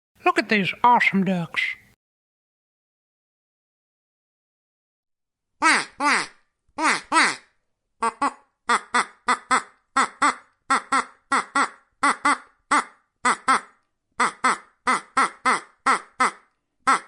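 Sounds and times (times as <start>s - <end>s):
duck quacking: 5.6s - 17.0s.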